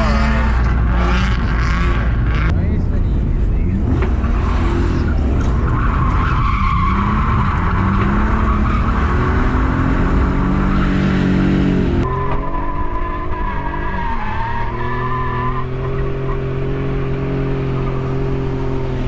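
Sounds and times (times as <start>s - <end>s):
car engine at high revs: 0.0s - 19.0s
tyres squealing: 4.1s - 19.0s.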